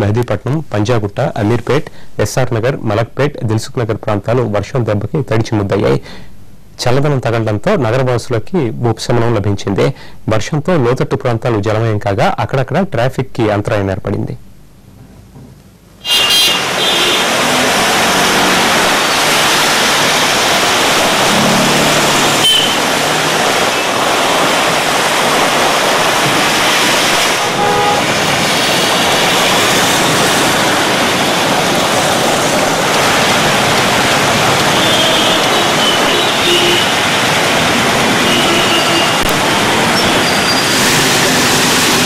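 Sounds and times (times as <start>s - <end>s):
car horn toots: 16.0s - 18.8s, 21.3s - 23.9s, 27.4s - 28.2s, 34.7s - 37.0s, 38.2s - 39.3s
heavy rain pouring: 16.0s - 42.0s
tyres hissing on wet road: 16.0s - 42.0s.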